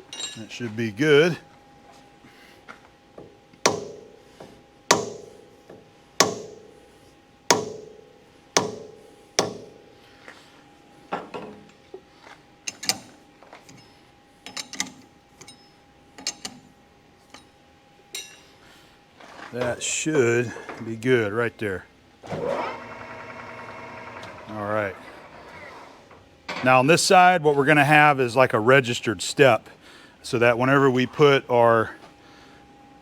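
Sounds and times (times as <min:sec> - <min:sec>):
hammer tapping steel: 0:03.2 - 0:04.1, 0:04.9 - 0:06.7, 0:07.5 - 0:08.0, 0:08.6 - 0:09.8.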